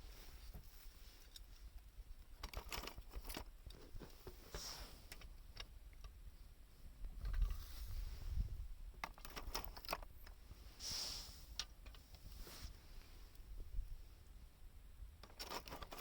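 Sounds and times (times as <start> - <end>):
clicks and crackles of wood: 0.5 - 6.2, 7.0 - 7.6, 8.9 - 10.4, 11.5 - 12.3, 15.2 - 16.0.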